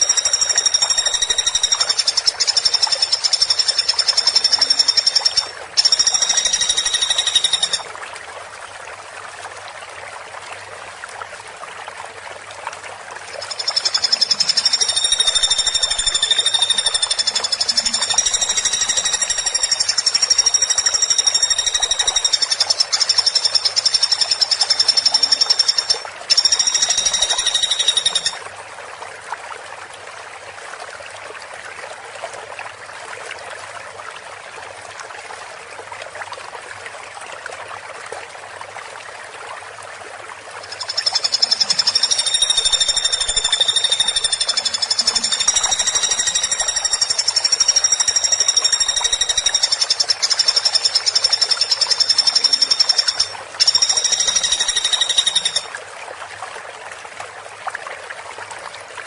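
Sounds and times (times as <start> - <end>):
woodpecker rattling trill: 0.0 - 7.8, 13.4 - 28.4, 40.7 - 55.7.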